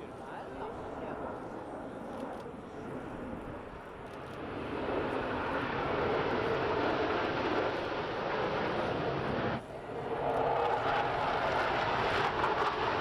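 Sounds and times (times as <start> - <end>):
fighter jet engines rushing: 2.7 - 13.0.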